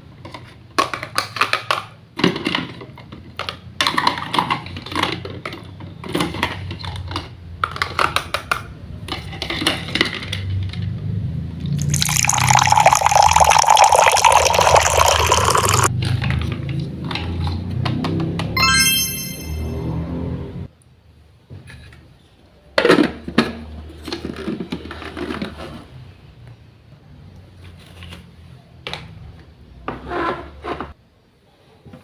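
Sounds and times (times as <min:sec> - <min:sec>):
liquid pouring: 0:11.8 - 0:15.9.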